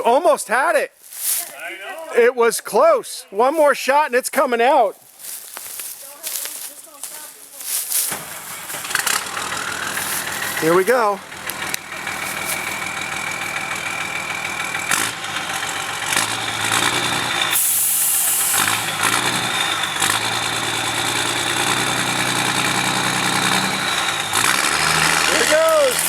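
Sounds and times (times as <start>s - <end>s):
truck engine under load: 7.0s - 26.0s
short loud hiss: 17.6s - 18.6s.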